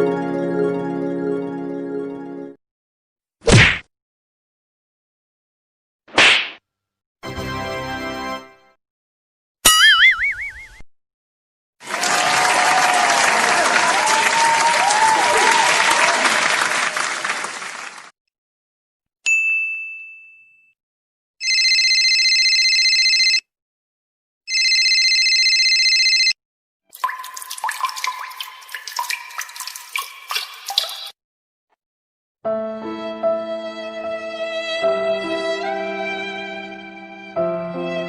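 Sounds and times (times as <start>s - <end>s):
applause and cheering: 11.8s - 18.2s
bell ding: 19.3s - 20.8s.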